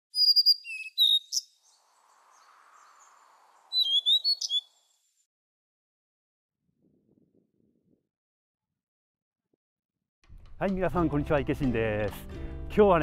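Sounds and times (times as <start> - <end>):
small bird chirping: 0.0 - 5.2.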